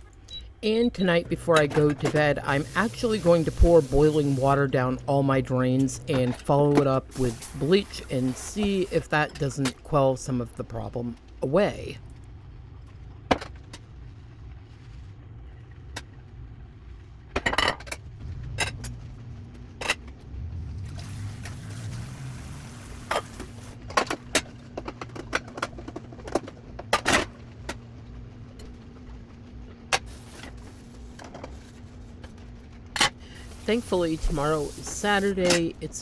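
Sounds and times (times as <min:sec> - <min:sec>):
steady hum: 0:00.0 - 0:36.0
low rumble: 0:13.8 - 0:25.2.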